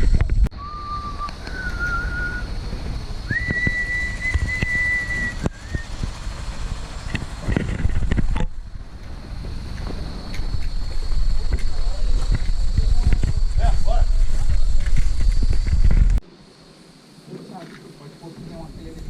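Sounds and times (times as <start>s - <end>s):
low wind-like rumble: 0.0s - 19.0s
person whistling notes: 0.5s - 2.5s, 3.3s - 5.9s.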